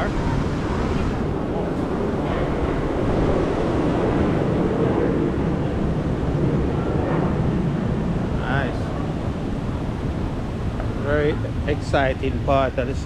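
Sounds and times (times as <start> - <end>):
wind buffeting microphone: 0.0 - 13.0
city traffic: 7.7 - 13.0.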